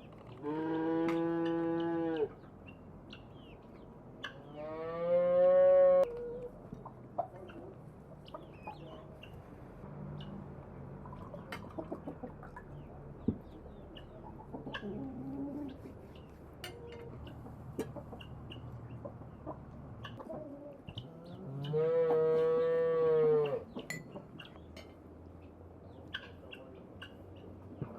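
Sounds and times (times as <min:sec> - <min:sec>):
hens clucking: 0:00.2 - 0:09.6, 0:11.0 - 0:24.8, 0:25.4 - 0:27.9
loud livestock call: 0:21.6 - 0:23.6.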